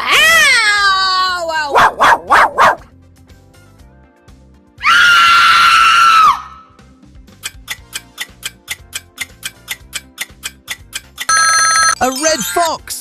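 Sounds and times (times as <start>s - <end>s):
light background music: 0.2s - 13.0s
fox screaming: 4.8s - 6.6s.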